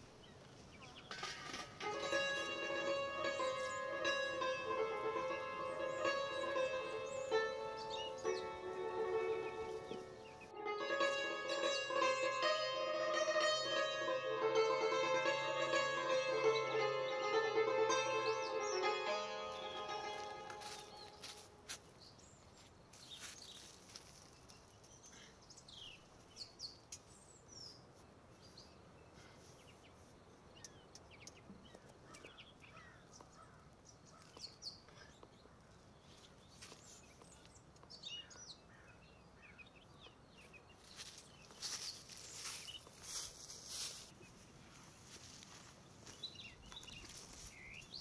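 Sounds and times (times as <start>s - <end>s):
bird chirps: 5.7s - 8.8s, 18.5s - 44.5s, 46.0s - 48.0s.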